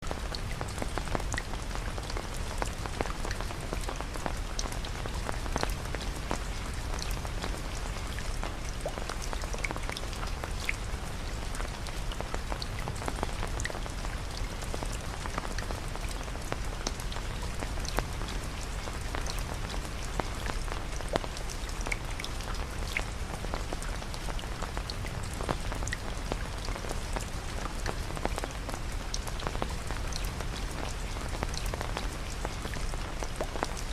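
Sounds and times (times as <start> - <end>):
steady rain falling: 0.0 - 33.9
raindrops tapping: 0.1 - 33.9.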